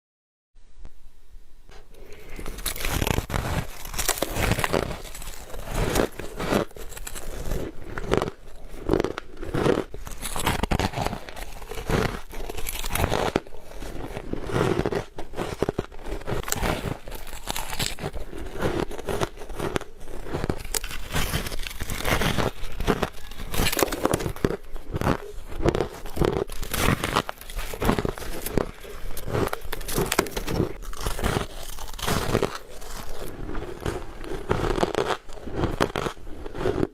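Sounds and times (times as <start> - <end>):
ice crunching between teeth: 1.9 - 36.9.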